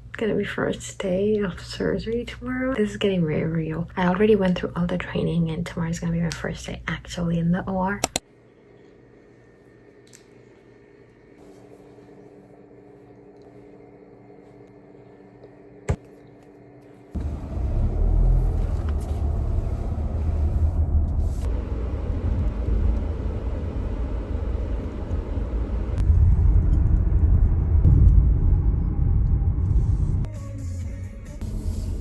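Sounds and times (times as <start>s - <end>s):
sharp click: 8.0s - 8.2s
car driving low rumble: 17.2s - 30.3s.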